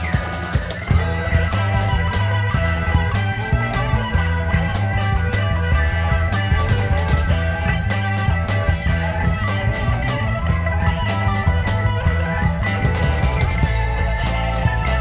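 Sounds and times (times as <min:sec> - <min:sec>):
live surf rock band: 0:00.0 - 0:15.0.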